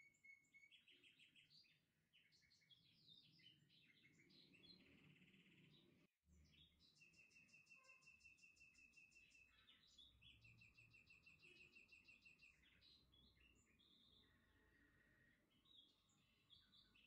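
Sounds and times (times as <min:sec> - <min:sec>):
high bird chirps: 0:06.5 - 0:17.0.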